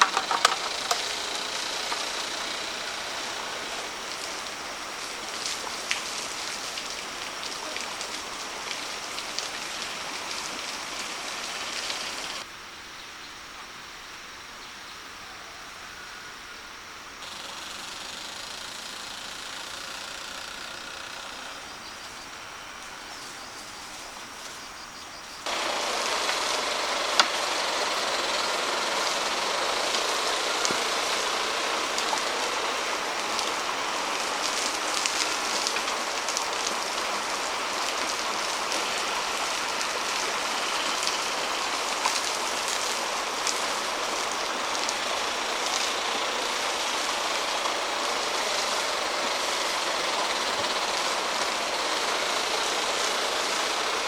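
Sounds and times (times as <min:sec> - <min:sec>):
rice mill grinding: 0:00.0 - 0:04.1, 0:25.5 - 0:54.0.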